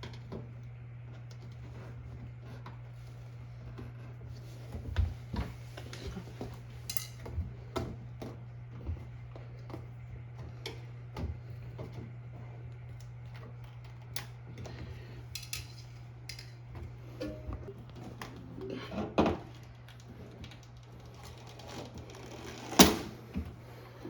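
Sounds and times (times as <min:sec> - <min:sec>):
steady low hum: 0:00.0 - 0:24.0
metal tools clinking and knocking: 0:06.9 - 0:07.2, 0:15.4 - 0:16.6.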